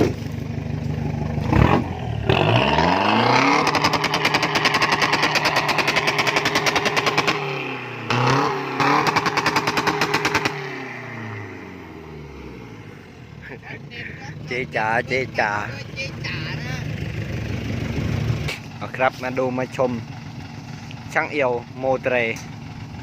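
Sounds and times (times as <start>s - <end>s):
engine revving against rev limiter: 1.3s - 12.9s.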